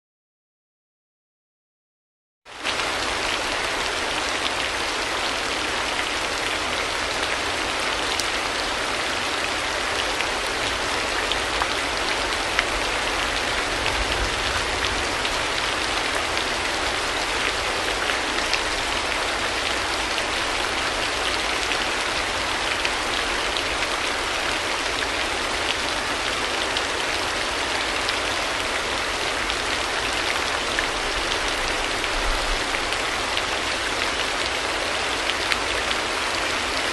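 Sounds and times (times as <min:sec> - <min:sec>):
steady rain falling: 0:02.5 - 0:36.9.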